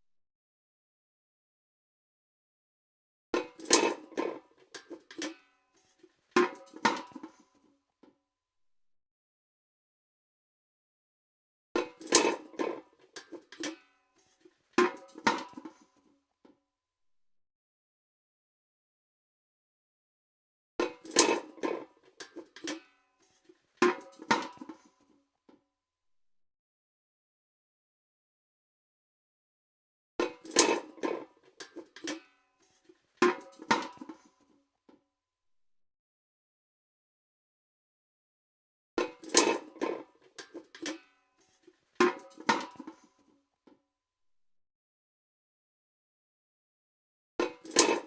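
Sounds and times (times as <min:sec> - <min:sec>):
metal bucket clanking: 0:11.8 - 0:13.8, 0:20.8 - 0:22.9, 0:30.2 - 0:34.3, 0:39.0 - 0:41.0, 0:42.0 - 0:43.0, 0:47.4 - 0:48.0.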